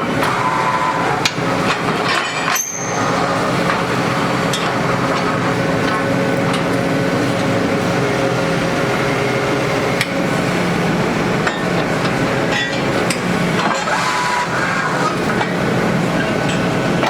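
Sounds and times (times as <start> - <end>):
drilling rig engine running: 0.0 - 17.0
sharp metallic clinks: 2.4 - 3.2.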